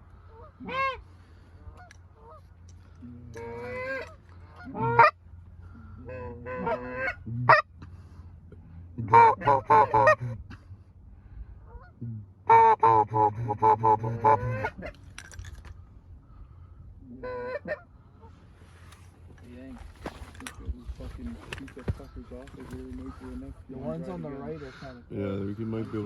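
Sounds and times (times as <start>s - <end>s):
geese honking: 0.2s - 8.2s, 9.0s - 10.5s, 11.6s - 15.0s, 16.3s - 19.0s, 22.0s - 26.0s.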